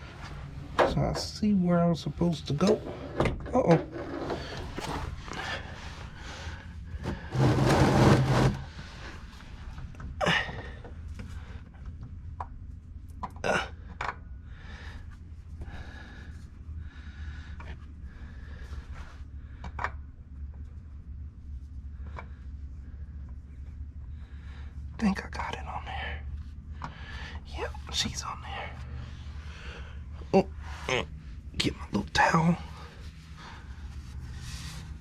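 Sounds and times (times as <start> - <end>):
man grunting: 10.2 - 10.6, 13.4 - 13.8.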